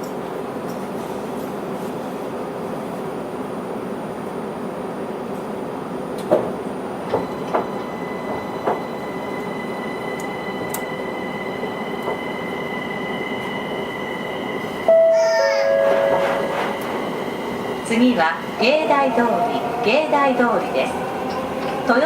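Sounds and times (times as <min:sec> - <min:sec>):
train rushing noise: 0:05.8 - 0:22.0.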